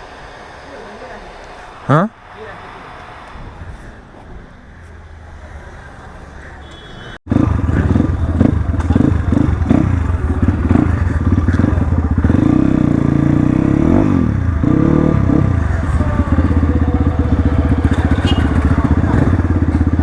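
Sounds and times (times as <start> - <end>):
dirt bike engine revving: 6.7 - 20.0.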